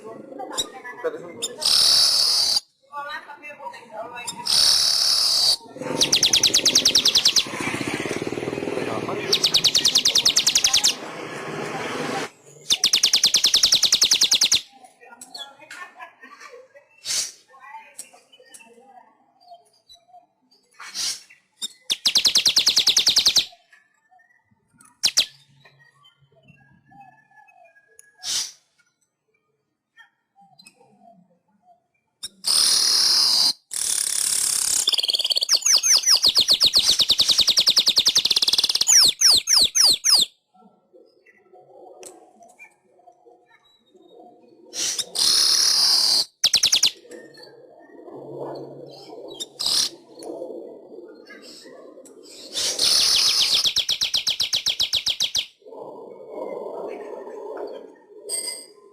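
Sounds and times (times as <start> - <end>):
weaver bird singing: 1.4 - 2.7, 4.2 - 11.0, 12.4 - 15.6, 19.4 - 28.6, 32.2 - 40.3, 42.4 - 50.2, 51.1 - 55.7
bird soft chattering: 4.3 - 8.3, 8.9 - 11.0
bird buzzy wheeze: 4.4 - 7.5, 32.4 - 36.2, 44.7 - 46.4
bird sharp chips: 9.2 - 11.0, 32.2 - 40.3.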